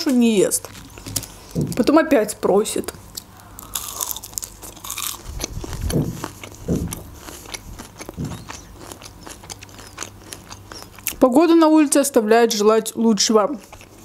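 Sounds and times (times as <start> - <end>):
crunchy chewing of fried food: 0.0 - 1.9, 3.1 - 11.4, 13.1 - 14.0.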